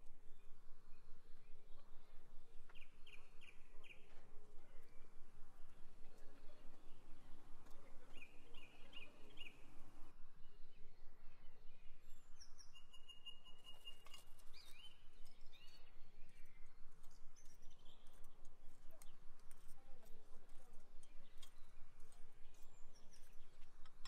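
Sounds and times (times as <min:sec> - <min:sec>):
wild birds chirping: 0:00.0 - 0:19.4, 0:20.4 - 0:24.0.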